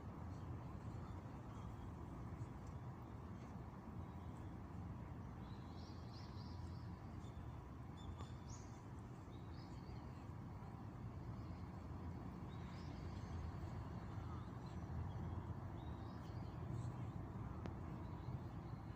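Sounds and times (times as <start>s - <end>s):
low outdoor rumble: 8.8s - 18.9s.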